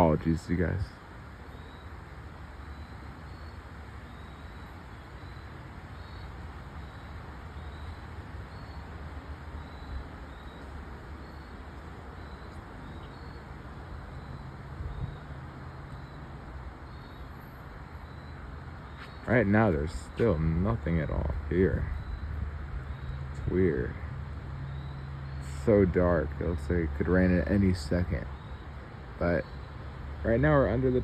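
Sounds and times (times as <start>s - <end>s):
faint high chirp: 2.6s - 25.5s.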